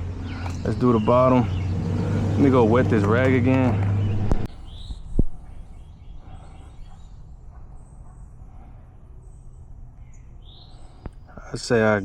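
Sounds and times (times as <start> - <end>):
faint bird chirps: 4.0 - 11.6.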